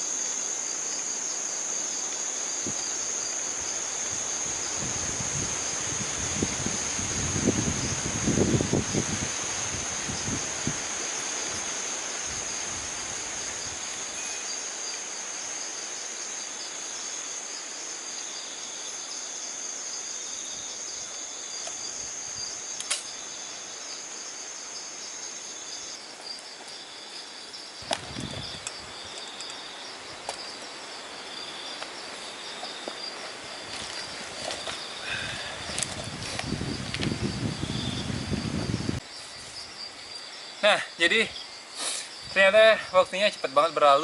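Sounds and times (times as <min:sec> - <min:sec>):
insects high trill: 0:00.0 - 0:44.0
sharp clicks: 0:22.8 - 0:23.1.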